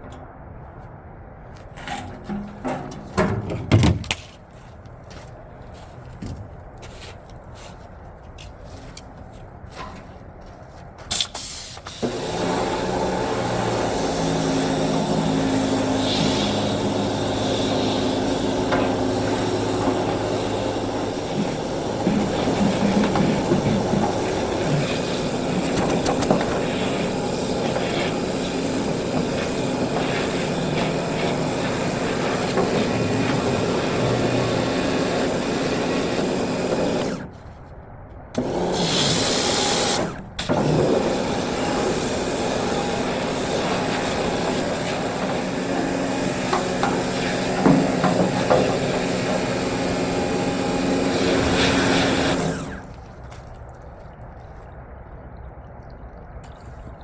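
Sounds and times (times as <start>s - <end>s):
pressure washer spraying: 11.1s - 37.3s, 38.4s - 52.9s.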